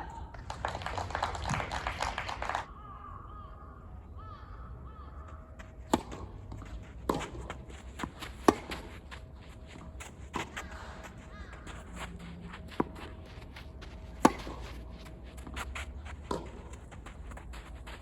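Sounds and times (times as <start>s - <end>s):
people clapping: 0.0s - 2.8s
tennis ball bouncing: 5.2s - 18.0s
tennis ball struck with rackets: 5.9s - 8.9s, 14.1s - 16.8s.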